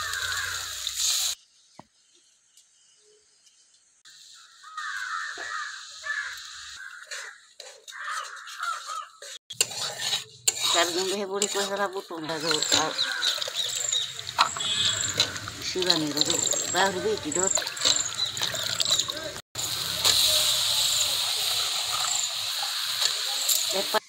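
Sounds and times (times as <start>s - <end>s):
bird calls: 4.3s - 9.4s, 12.4s - 19.4s.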